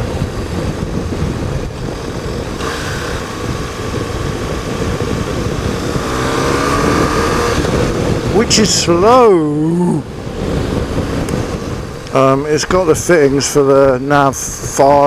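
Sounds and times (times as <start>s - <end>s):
motorcycle engine running: 0.0s - 8.9s, 10.0s - 12.7s
wind and road noise: 0.0s - 15.0s.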